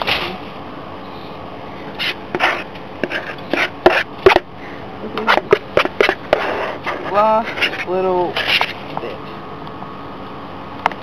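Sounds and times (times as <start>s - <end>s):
knife scraping and knocking: 2.0s - 4.4s, 5.2s - 8.8s.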